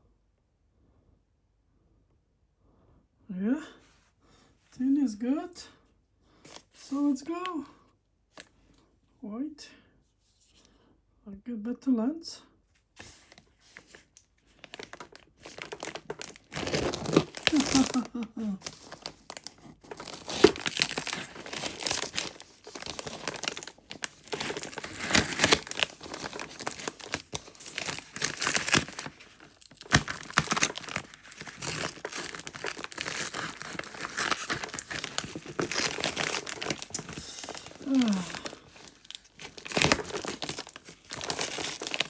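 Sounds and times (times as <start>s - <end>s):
packaging crinkling and rustling: 8.3s - 8.6s, 13.0s - 42.0s
wrapping tearing: 13.0s - 42.0s.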